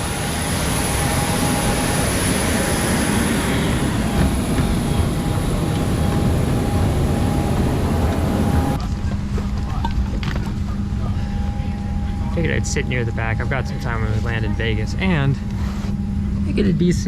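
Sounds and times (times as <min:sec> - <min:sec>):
jet airliner rushing noise: 0:00.0 - 0:09.6
faint steady whine: 0:00.0 - 0:17.0.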